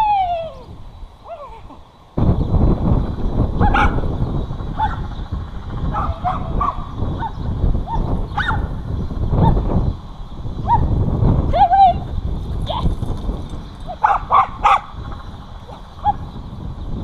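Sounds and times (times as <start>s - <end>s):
loud low rumble: 2.2s - 17.0s
dog yipping and barking: 3.6s - 4.0s, 5.9s - 8.7s, 10.6s - 10.9s, 13.8s - 15.0s.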